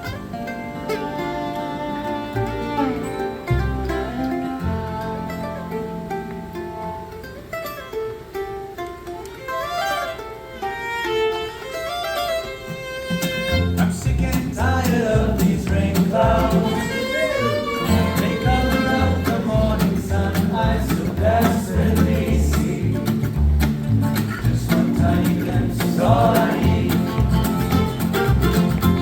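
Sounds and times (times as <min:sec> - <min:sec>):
bowed fiddle melody: 0:00.0 - 0:29.0
plucked string notes: 0:00.0 - 0:29.0
bass line: 0:02.3 - 0:07.2, 0:13.4 - 0:29.0.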